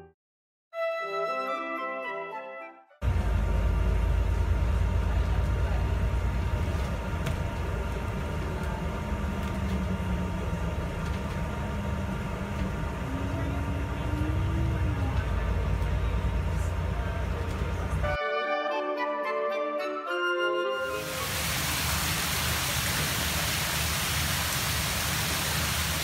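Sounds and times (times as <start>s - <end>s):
bus engine running: 3.0s - 18.2s
road rumble: 3.0s - 18.2s.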